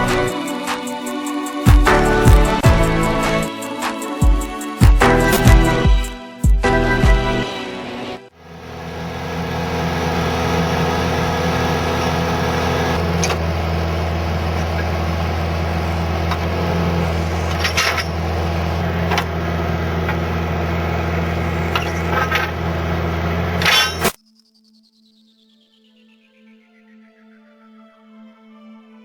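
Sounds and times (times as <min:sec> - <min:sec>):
drilling rig droning: 0:08.4 - 0:24.2
sharp metallic clanks: 0:14.5 - 0:24.2.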